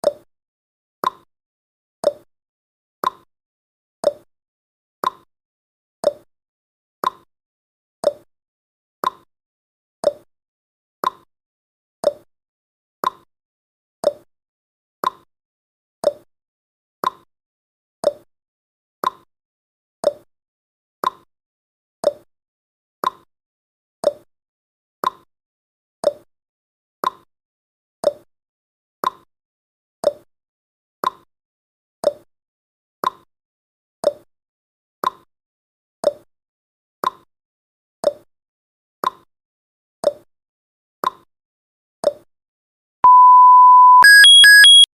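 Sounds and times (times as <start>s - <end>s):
countdown timer ticking: 43.1s - 44.9s.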